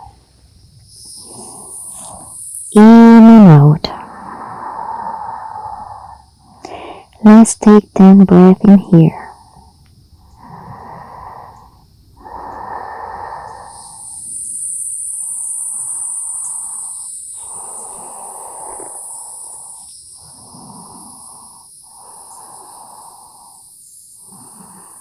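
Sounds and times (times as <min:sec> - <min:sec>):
slow deep breathing: 0:01.1 - 0:02.4, 0:03.9 - 0:07.2, 0:09.2 - 0:14.6, 0:15.6 - 0:25.0.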